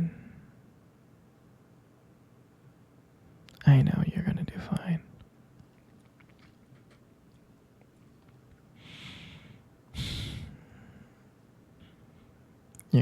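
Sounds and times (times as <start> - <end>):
man breathing: 8.8 - 12.4.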